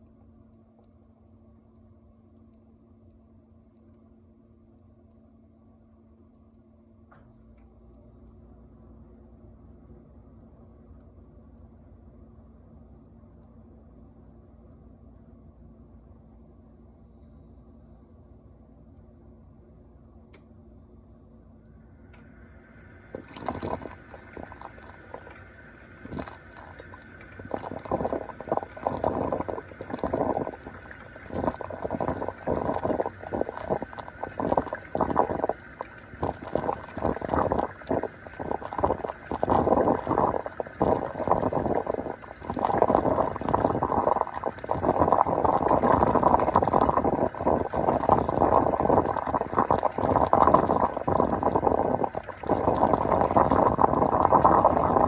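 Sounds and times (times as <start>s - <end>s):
coffee machine gurgling: 22.2s - 55.0s.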